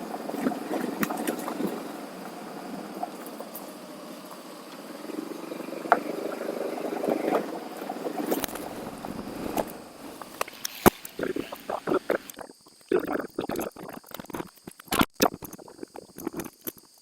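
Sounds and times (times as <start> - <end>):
motorcycle engine running: 0.0 - 12.3
rush of wind: 0.0 - 12.3.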